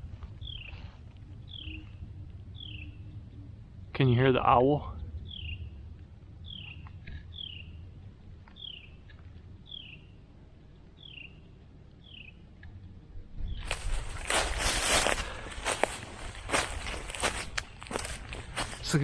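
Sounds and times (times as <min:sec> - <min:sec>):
footsteps crunching dry leaves: 0:13.6 - 0:19.0.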